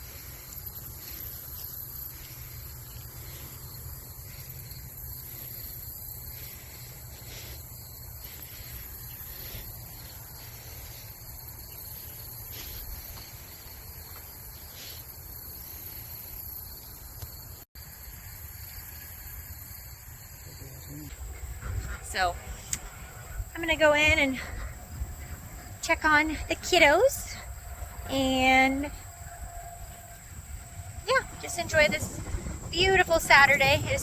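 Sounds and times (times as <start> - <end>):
insect chorus: 0.0 - 34.0
constant low rumble: 20.9 - 34.0.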